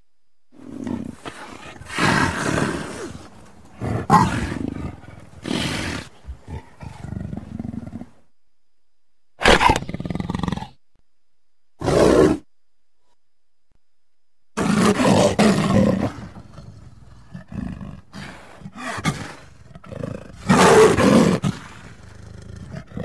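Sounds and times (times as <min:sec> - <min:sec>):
lion roaring and growling: 0:00.6 - 0:08.2, 0:14.6 - 0:23.0.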